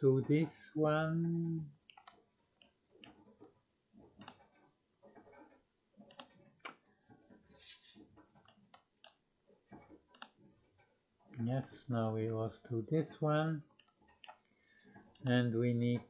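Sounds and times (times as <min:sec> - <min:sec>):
computer mouse and keyboard clicks: 0:01.8 - 0:07.5, 0:08.2 - 0:10.9, 0:13.7 - 0:15.4.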